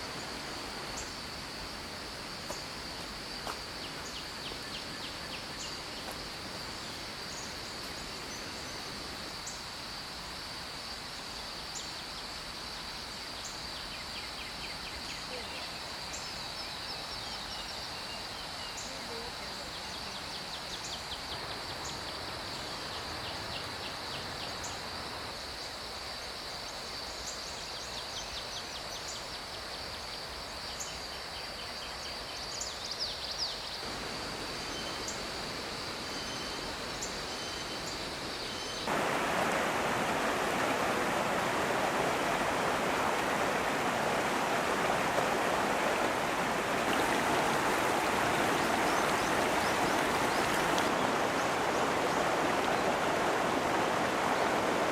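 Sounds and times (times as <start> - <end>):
stream rushing over rocks: 0.0 - 13.0, 33.8 - 54.9.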